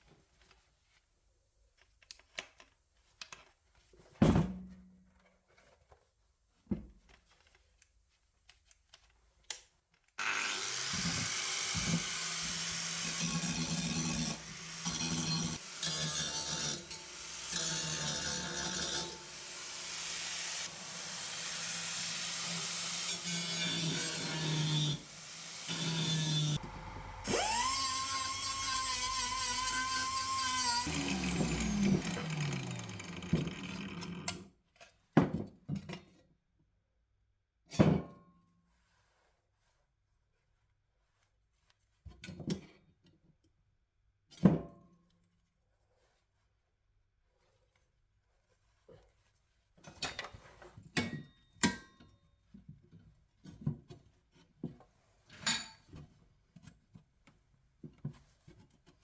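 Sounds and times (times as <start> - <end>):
angle grinder grinding steel: 10.2 - 34.3.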